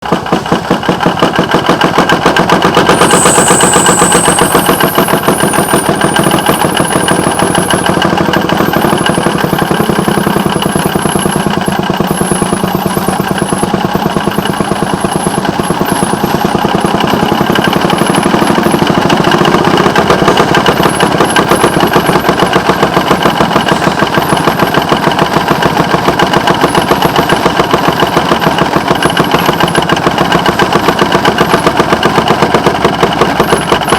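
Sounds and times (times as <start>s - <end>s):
small engine puttering: 0.0s - 33.9s
high metal squeal: 2.8s - 32.0s
faint high squeaks: 2.9s - 24.7s.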